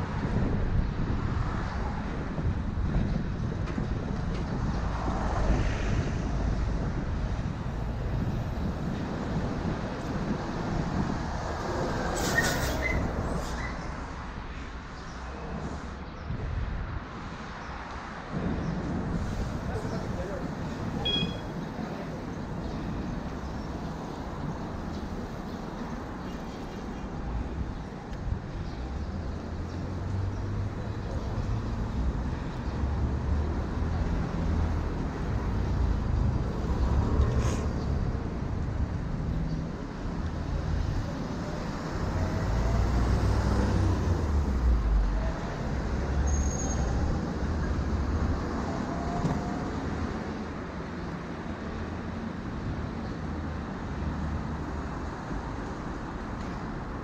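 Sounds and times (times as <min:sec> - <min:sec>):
passing road traffic: 0:00.0 - 0:57.0
short high beep: 0:21.0 - 0:21.4.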